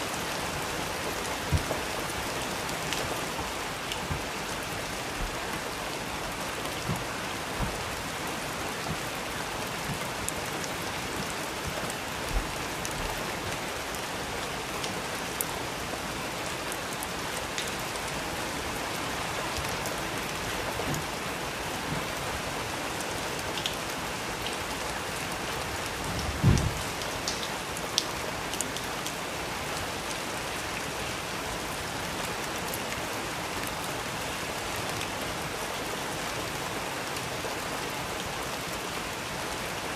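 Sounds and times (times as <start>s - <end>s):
steady rain falling: 0.0s - 39.9s
short low thump: 6.8s - 8.0s, 26.4s - 26.8s.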